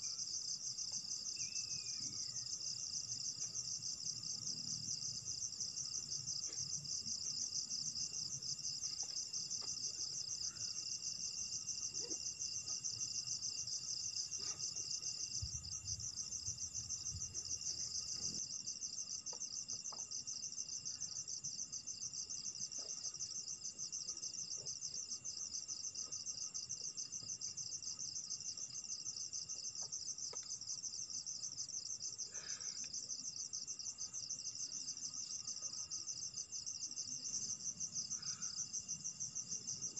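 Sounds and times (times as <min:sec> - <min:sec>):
crickets trilling: 0:00.0 - 0:39.9
insects high steady tones: 0:00.0 - 0:39.9.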